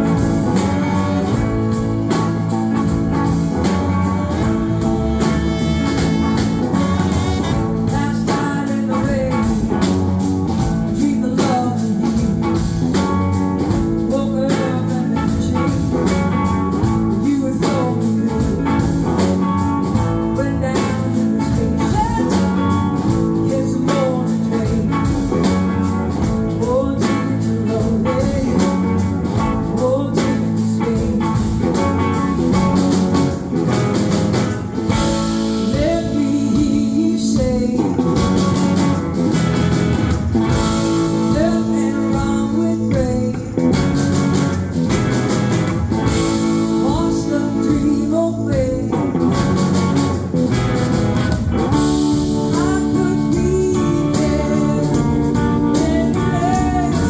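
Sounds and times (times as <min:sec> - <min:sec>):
electric guitar sliding bending notes: 0:00.0 - 0:11.1
bass guitar: 0:00.0 - 0:57.0
drums: 0:00.0 - 0:57.0.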